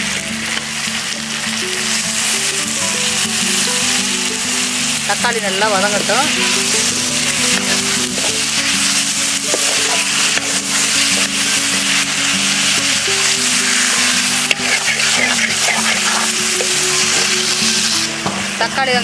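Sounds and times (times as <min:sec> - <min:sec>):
background music: 0:00.0 - 0:19.0
vegetables sizzling in oil: 0:00.0 - 0:19.0
metal ladle scraping pan: 0:06.3 - 0:18.1.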